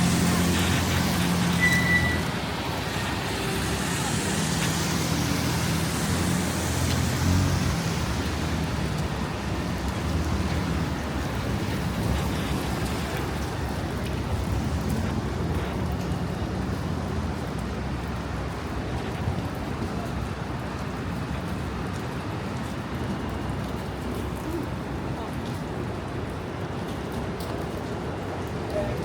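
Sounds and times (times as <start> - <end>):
road noise: 0.0 - 29.0
brief high squeal: 1.6 - 2.3.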